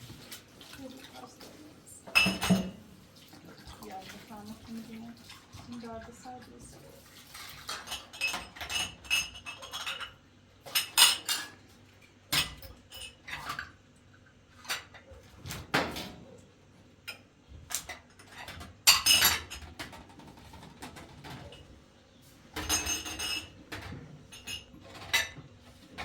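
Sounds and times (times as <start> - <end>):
dishes and cutlery clinking: 1.5 - 2.9, 7.3 - 11.7, 12.3 - 13.8, 17.0 - 21.7, 22.5 - 26.0.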